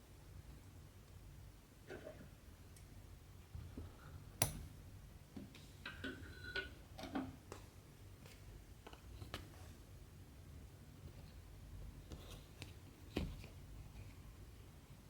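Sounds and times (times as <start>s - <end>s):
soft clicks and scrapes: 11.0s - 14.2s.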